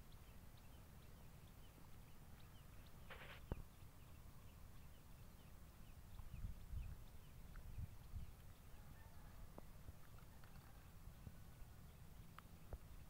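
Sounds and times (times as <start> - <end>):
faint falling bird chirps: 3.0 - 3.6
brief rustle: 3.1 - 3.6.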